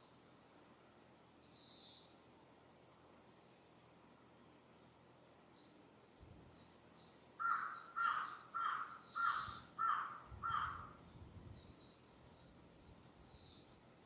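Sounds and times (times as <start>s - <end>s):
small birds chirping: 1.4s - 2.2s, 5.2s - 14.0s
crow cawing: 7.4s - 11.0s.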